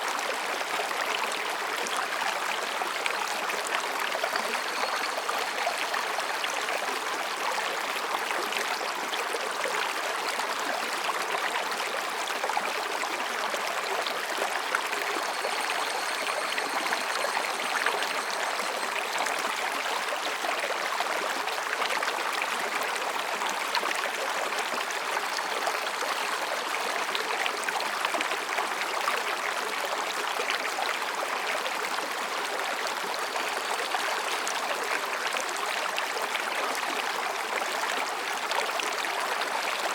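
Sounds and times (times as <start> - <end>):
stream babbling over rocks: 0.0 - 39.9
distant cicadas calling: 14.8 - 19.8.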